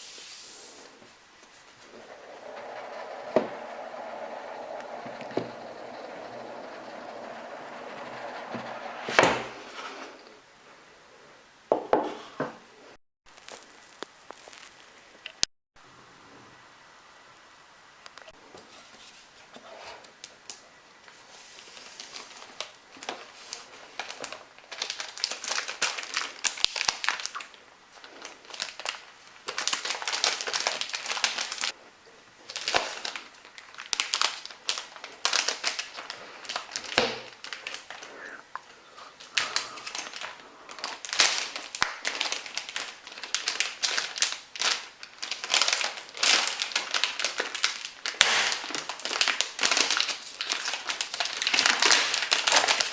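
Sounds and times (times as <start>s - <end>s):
plastic and paper crinkling: 13.3s - 14.9s, 21.1s - 31.7s, 32.5s - 52.9s.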